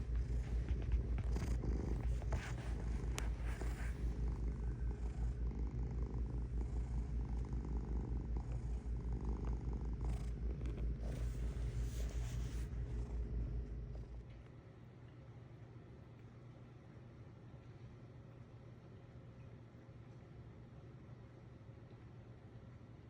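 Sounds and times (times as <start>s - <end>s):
cat purring: 0.0s - 14.4s.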